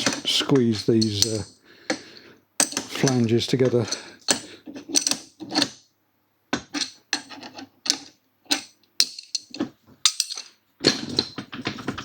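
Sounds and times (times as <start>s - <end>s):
metallic clinks and knocks: 1.0s - 1.5s, 6.6s - 12.0s.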